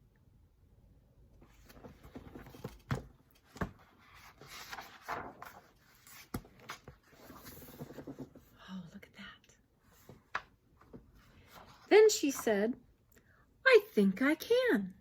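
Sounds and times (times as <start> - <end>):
paper rustling: 1.4 - 8.5.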